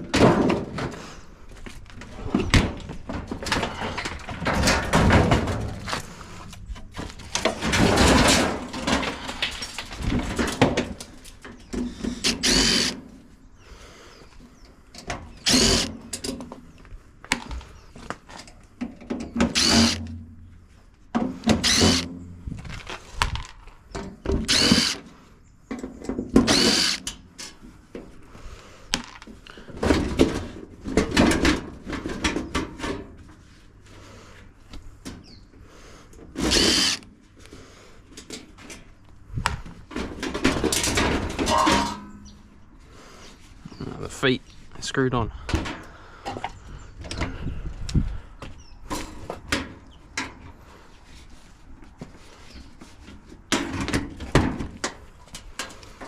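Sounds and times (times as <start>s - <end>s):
power drill whining: 12.1s - 13.0s, 15.4s - 16.0s, 19.5s - 20.1s, 21.6s - 22.1s, 24.4s - 25.0s, 26.5s - 27.1s, 36.4s - 37.1s.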